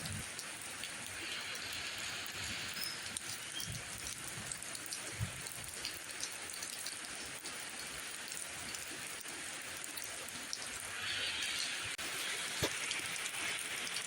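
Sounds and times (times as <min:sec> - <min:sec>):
raindrops ticking: 0:00.0 - 0:10.8
rain falling: 0:00.0 - 0:14.0.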